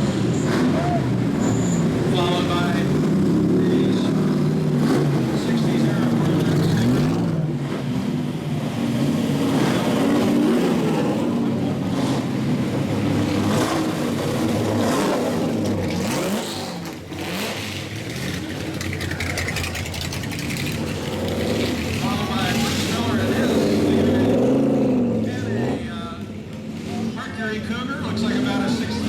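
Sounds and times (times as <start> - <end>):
race cars driving past revving: 0.0 - 29.0.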